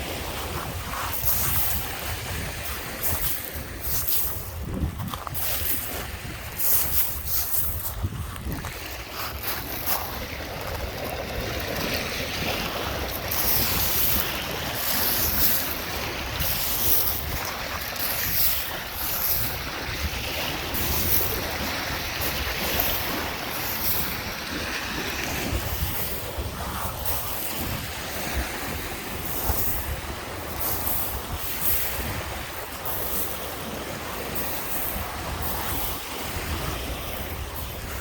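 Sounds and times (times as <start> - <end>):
waves washing onto beach: 0.0 - 38.0
wind buffeting microphone: 0.0 - 38.0.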